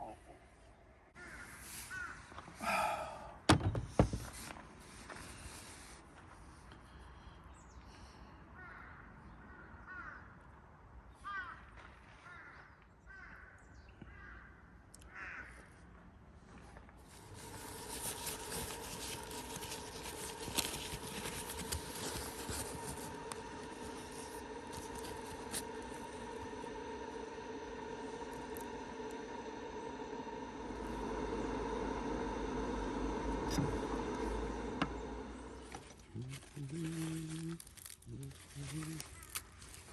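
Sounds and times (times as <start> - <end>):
crow cawing: 1.2 - 3.1, 8.6 - 10.4, 11.2 - 15.7
steady hum with hiss: 17.0 - 39.9.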